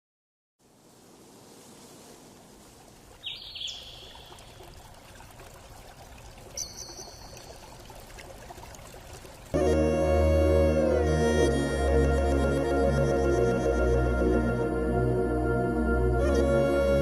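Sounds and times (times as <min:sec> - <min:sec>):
bird calls: 0:03.2 - 0:04.5.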